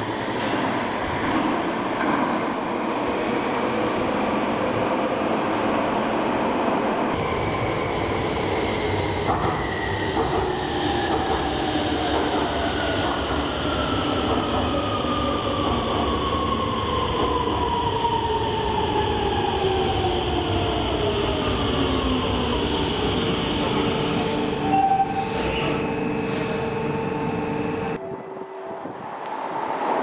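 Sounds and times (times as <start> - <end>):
train wheels rumbling on rail: 7.1 - 28.1
traction motor whine: 23.8 - 28.0.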